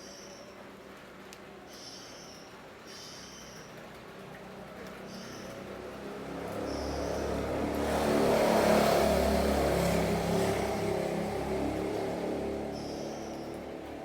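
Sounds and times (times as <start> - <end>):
motor vehicle passing by: 5.5 - 14.0.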